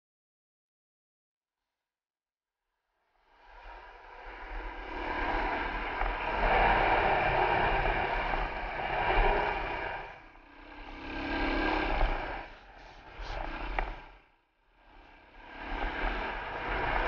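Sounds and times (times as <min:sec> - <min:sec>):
dirt bike engine: 0:03.7 - 0:17.0
wind buffeting camera: 0:04.0 - 0:14.1.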